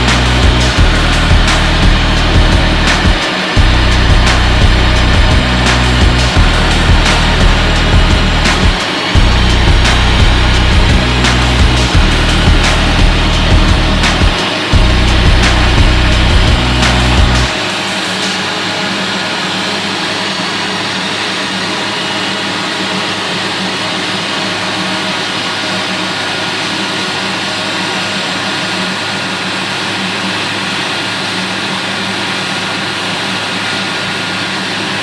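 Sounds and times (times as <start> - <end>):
aircraft engines humming: 0.0 - 19.6.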